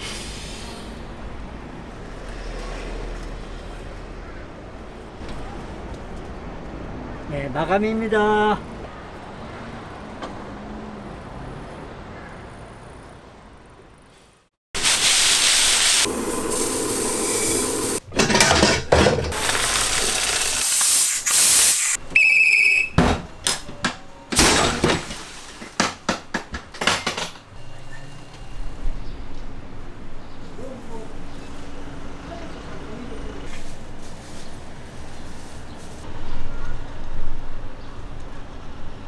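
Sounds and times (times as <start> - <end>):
loud hissing steam blasts: 0.0 - 1.2, 14.8 - 18.0, 19.3 - 22.0
warning whistle: 22.1 - 23.0.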